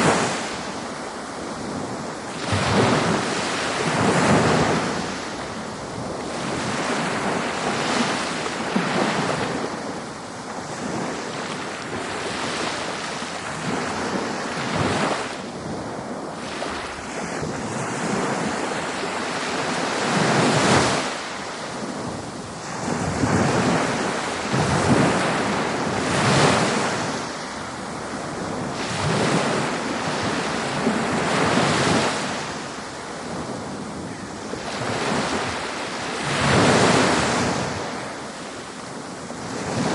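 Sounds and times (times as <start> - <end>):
ocean waves breaking on beach: 0.0 - 39.9
wind on microphone: 0.0 - 39.9.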